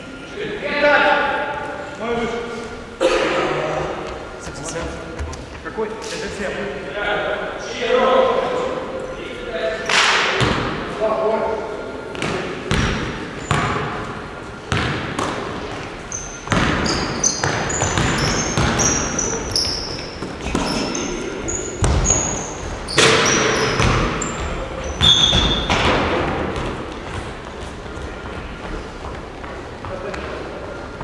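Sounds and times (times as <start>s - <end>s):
basketballs bouncing on floor: 12.2s - 13.9s, 14.7s - 27.7s.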